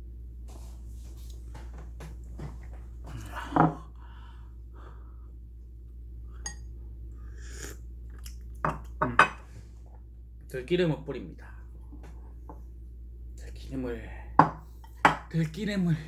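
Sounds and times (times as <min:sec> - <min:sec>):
soft knocks and rustles: 0:00.5 - 0:03.2.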